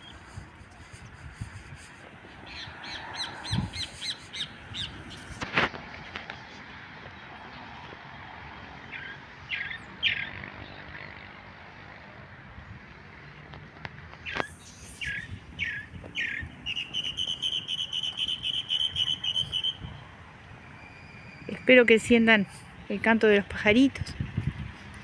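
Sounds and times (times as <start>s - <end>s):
small birds singing: 2.4s - 5.4s, 8.8s - 11.3s, 14.2s - 20.0s.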